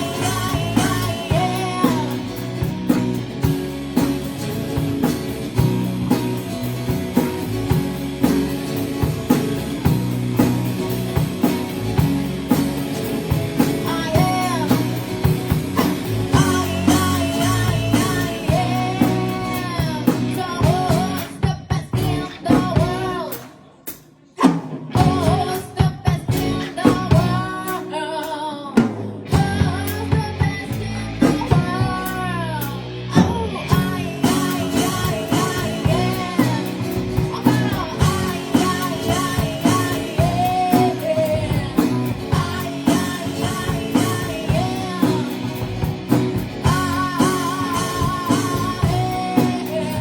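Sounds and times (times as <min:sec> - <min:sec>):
lead singer singing: 0:00.0 - 0:03.1, 0:13.6 - 0:23.7, 0:24.4 - 0:50.0
electric guitar: 0:00.0 - 0:23.7, 0:24.8 - 0:50.0
drum kit: 0:00.0 - 0:50.0.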